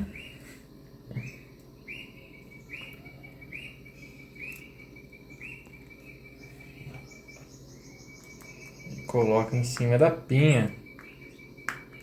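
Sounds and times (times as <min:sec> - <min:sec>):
faint steady hum: 0:00.0 - 0:12.0
high chirping call: 0:00.0 - 0:12.0.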